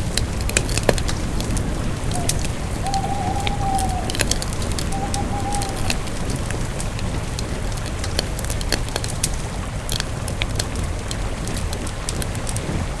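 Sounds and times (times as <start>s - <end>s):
campfire wood crackling: 0.0s - 13.0s
thin whistling tone: 2.1s - 6.2s.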